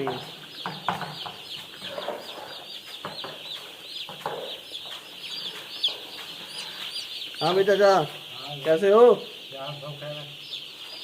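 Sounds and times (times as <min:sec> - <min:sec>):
faint knocks: 0:00.0 - 0:06.6
chicks peeping: 0:00.0 - 0:11.0.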